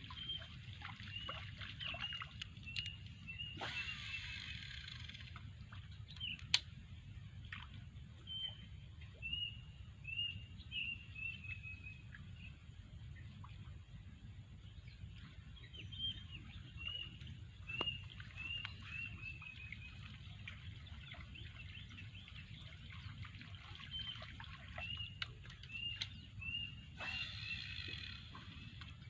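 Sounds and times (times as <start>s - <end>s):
birds chirping: 23.8s - 28.9s.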